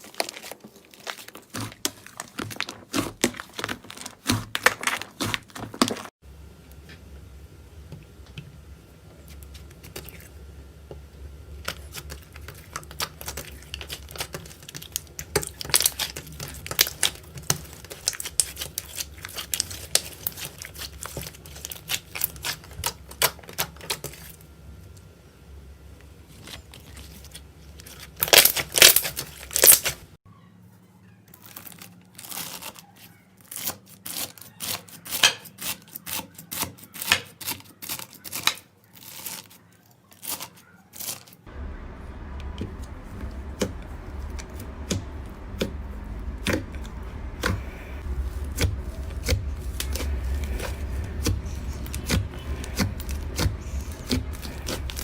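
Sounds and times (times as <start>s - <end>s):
slime crackling and popping: 11.7s - 24.2s, 27.3s - 30.1s, 43.5s - 55.0s.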